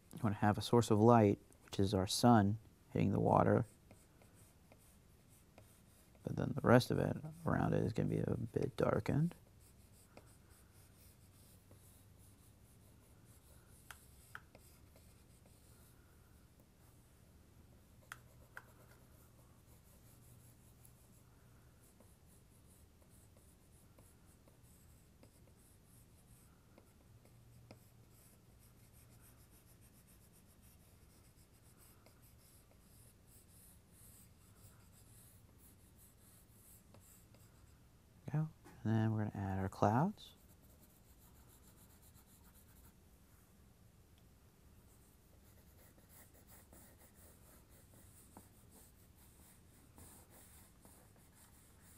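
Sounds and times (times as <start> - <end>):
low steady hum: 0.0 - 51.9
drawing tool scratching on paper: 45.4 - 51.9.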